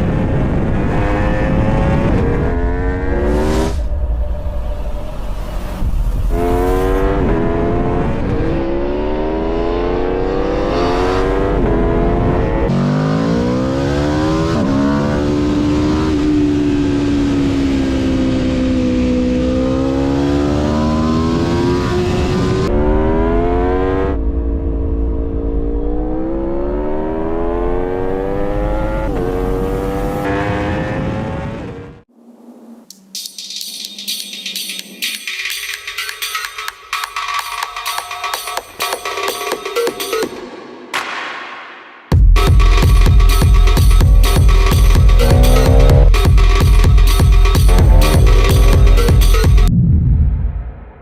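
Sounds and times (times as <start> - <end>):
motorcycle engine accelerating: 0.0 - 32.9, 43.4 - 49.7.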